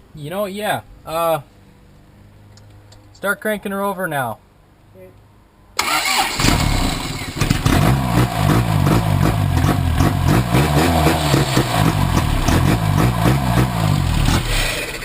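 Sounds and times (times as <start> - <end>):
engine running rough and revving: 6.3 - 15.0.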